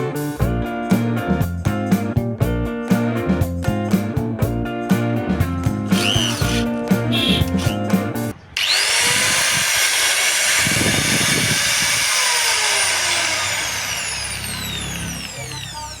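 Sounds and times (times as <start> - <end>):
angle grinder whining: 5.9 - 16.0.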